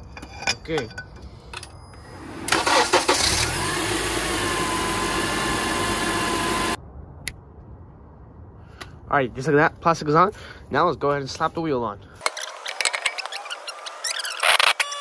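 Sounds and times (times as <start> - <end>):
car engine starting and idling: 2.0 - 6.8.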